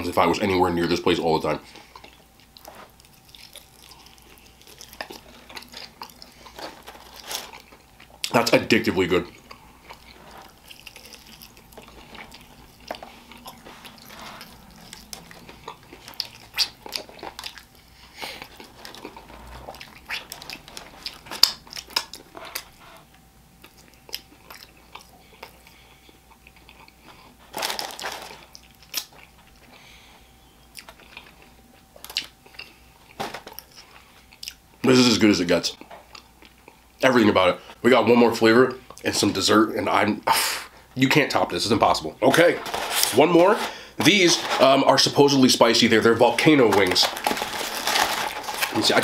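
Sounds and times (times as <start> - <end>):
chewing crunches: 1.6 - 8.4, 9.2 - 29.8, 30.7 - 34.7.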